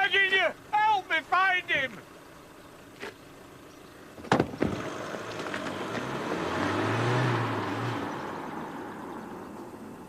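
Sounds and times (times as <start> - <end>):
car driving off: 2.0 - 10.0
car door slamming: 4.2 - 5.5.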